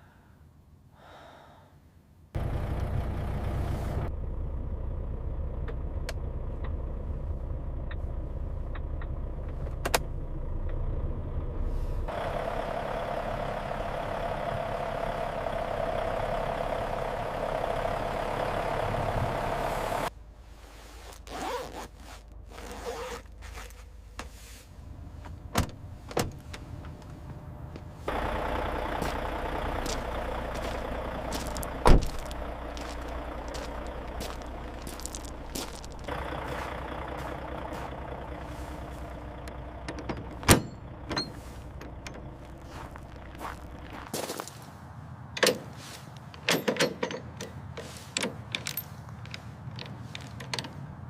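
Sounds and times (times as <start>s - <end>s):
truck cab hum: 2.2s - 51.0s
sharp clicks and knocks: 46.3s - 50.8s.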